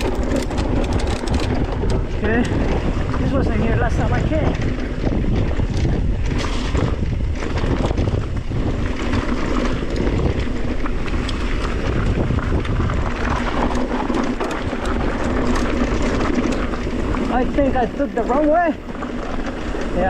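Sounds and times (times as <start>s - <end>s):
bike clicks and rattles: 0.0s - 20.0s
tyre rumble: 0.0s - 20.0s
wind buffeting microphone: 0.0s - 20.0s.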